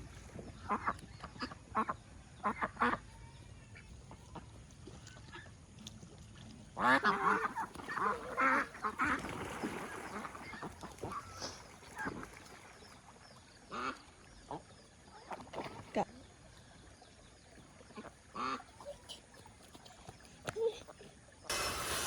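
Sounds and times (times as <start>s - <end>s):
ducks quacking: 0.6s - 3.1s, 6.8s - 12.3s, 17.8s - 20.2s.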